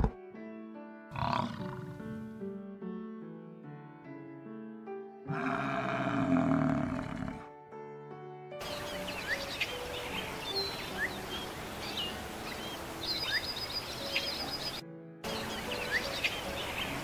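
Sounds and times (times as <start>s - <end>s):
soft background music: 0.0s - 17.0s
small birds chirping and twittering: 8.6s - 17.0s.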